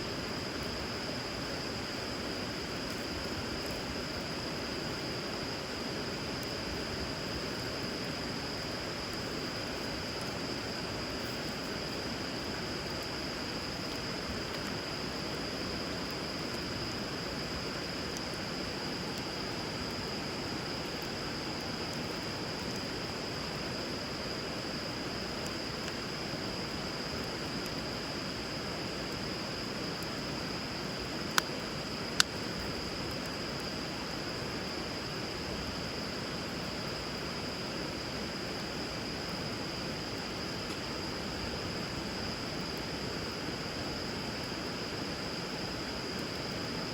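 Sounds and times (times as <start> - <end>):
campfire wood popping: 30.9 - 33.4.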